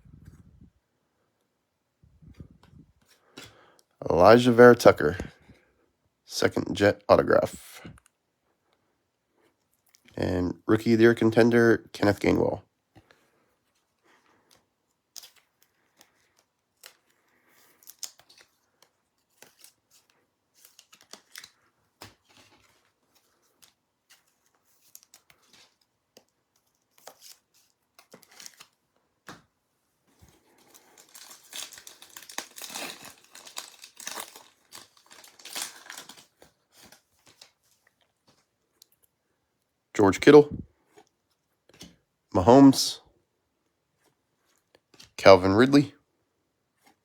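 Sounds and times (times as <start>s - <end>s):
foil wrapper crinkling and tearing: 27.0s - 28.8s, 30.4s - 37.6s.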